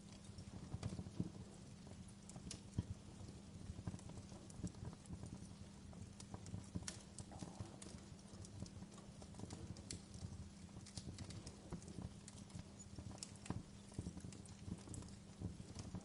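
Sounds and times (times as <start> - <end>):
fireplace fire crackling: 0.0 - 16.0.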